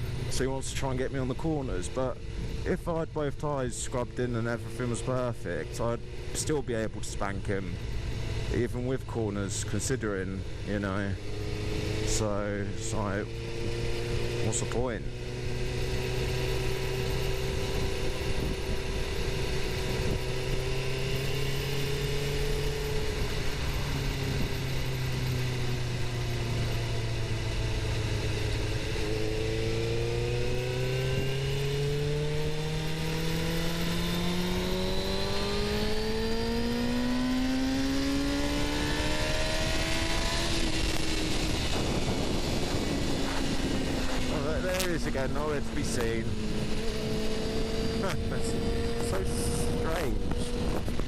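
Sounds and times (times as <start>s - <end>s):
motorcycle engine revving: 0.0s - 51.0s
wind and road noise: 0.0s - 51.0s.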